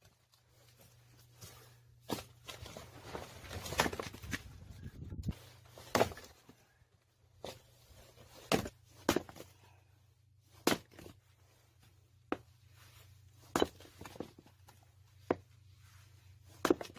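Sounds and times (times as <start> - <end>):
hatchet chopping firewood: 5.9 - 6.3, 8.5 - 9.4, 10.6 - 11.1, 13.5 - 14.3, 16.6 - 16.9.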